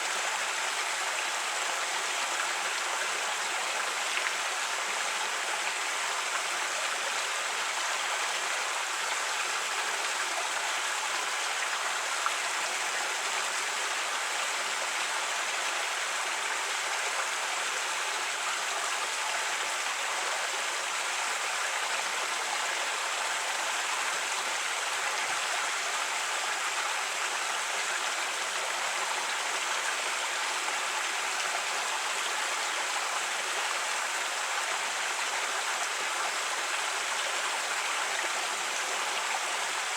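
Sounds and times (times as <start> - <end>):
creek running over rocks: 0.0 - 39.9.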